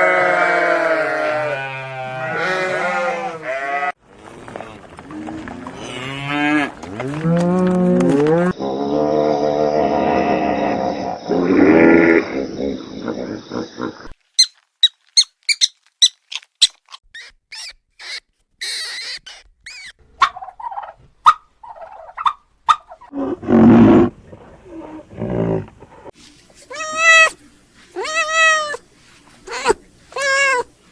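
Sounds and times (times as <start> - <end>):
high squeaks and chirps: 14.3 - 20.0
mid-pitched animal calls: 14.4 - 23.0, 26.7 - 27.4, 28.0 - 28.8, 29.5 - 30.7
meow-like cries: 26.7 - 27.4, 28.0 - 28.8, 29.5 - 30.7.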